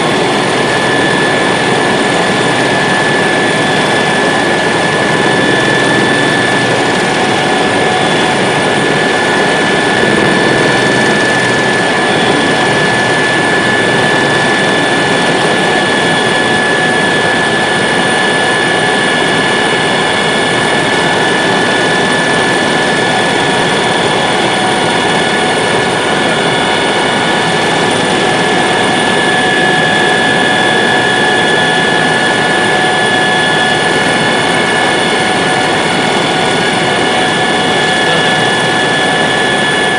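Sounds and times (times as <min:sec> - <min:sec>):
helicopter engine and rotor noise: 0:00.0 - 0:39.9
high-pitched whine: 0:00.0 - 0:39.9.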